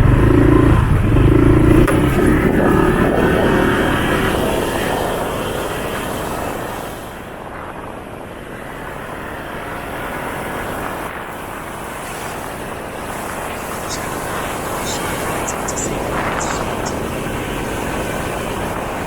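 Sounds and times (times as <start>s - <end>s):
motorcycle engine and wind roar: 0.0s - 19.0s.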